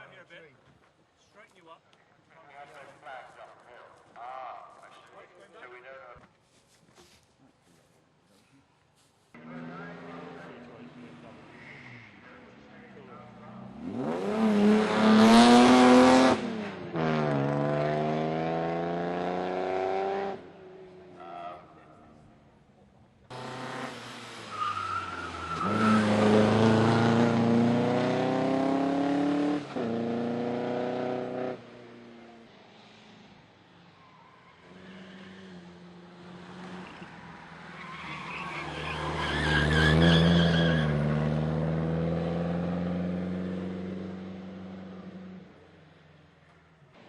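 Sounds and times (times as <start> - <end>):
racing car engine accelerating: 13.6 - 20.4, 23.3 - 31.6, 37.9 - 45.4
car engine passing by: 23.3 - 33.6, 34.6 - 45.5
tyre squeal: 24.5 - 26.4, 37.8 - 41.0.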